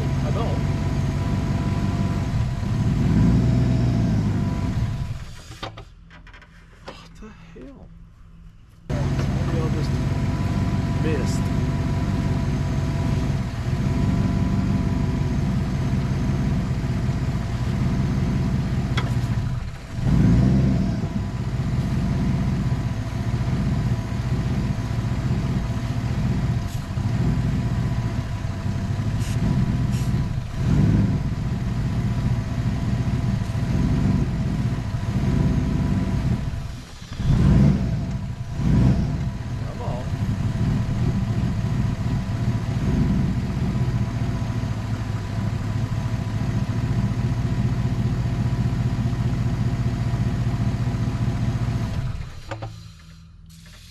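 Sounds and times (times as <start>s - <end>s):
car engine idling roughly: 15.5s - 20.3s, 36.1s - 53.9s.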